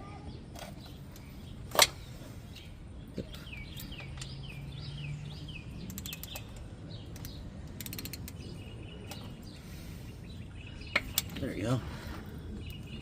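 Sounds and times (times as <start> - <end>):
small birds chirping: 0.0 - 13.0
ratchet wrench clicking: 5.8 - 8.4.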